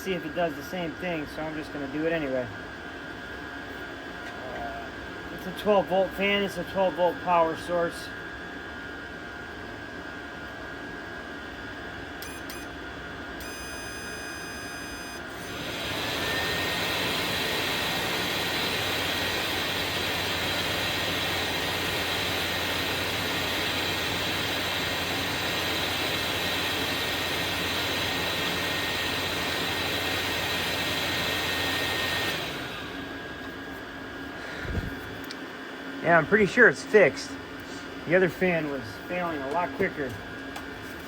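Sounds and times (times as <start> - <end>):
blower fan whine and air rush: 0.0 - 41.0
short steady tone: 13.4 - 15.5.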